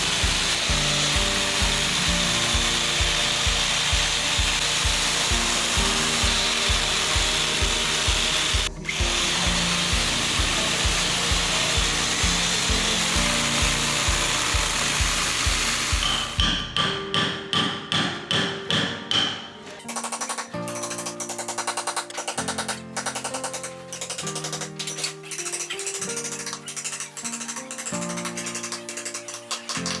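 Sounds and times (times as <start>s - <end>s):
power tool sanding wood: 0.0s - 16.4s
background music with beat: 0.0s - 30.0s.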